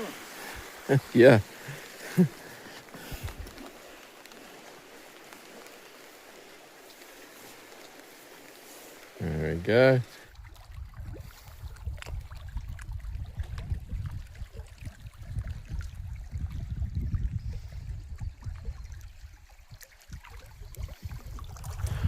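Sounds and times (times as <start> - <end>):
wind rumbling on microphone: 0.0 - 22.0
faint ticks: 2.8 - 9.2.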